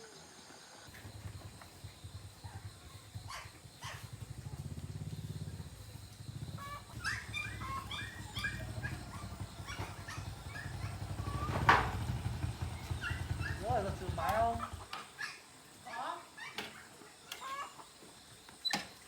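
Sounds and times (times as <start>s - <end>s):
pulsing motor hum: 0.9s - 14.9s
short high animal calls: 6.4s - 11.6s.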